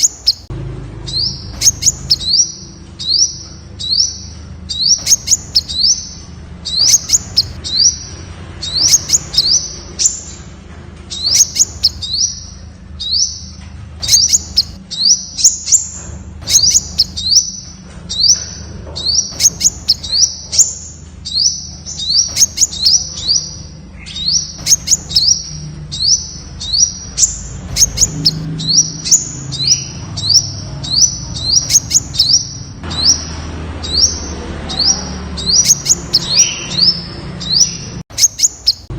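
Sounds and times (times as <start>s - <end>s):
sunbird upsweeping calls: 0.0s - 10.5s, 11.1s - 38.9s
sharp ticking bird notes: 0.0s - 38.9s.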